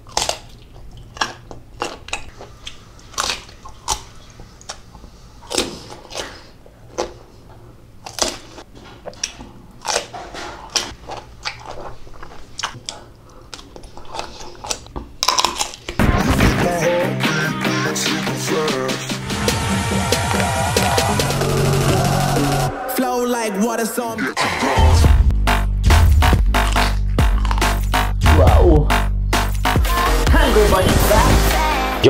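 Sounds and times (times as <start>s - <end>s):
crunching and chewing crisp food: 0.0s - 16.0s, 26.5s - 28.0s.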